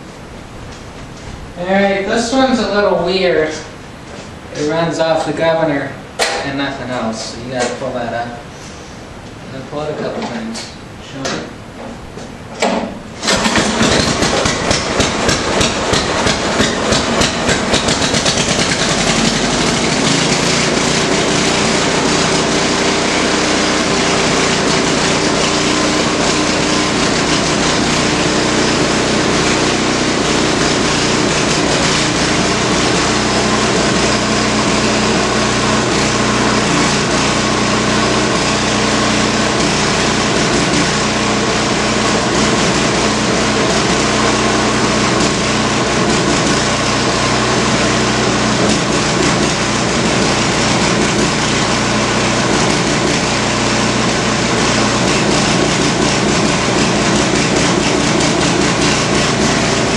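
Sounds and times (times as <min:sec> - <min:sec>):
snowblower engine starting: 0:13.2 - 0:59.9.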